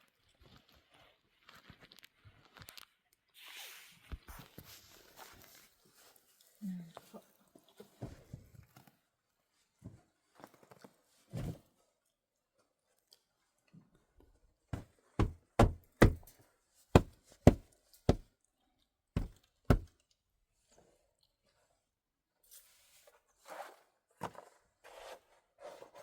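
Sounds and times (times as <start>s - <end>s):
sharp knocks: 15.2s - 16.3s, 17.0s - 17.6s, 19.2s - 19.9s.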